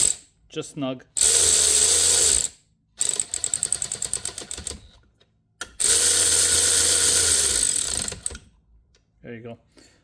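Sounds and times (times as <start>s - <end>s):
ratchet clicking: 5.8s - 8.4s.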